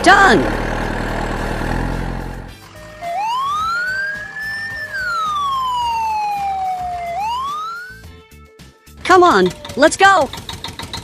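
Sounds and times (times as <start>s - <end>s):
police siren wailing: 2.7s - 8.0s.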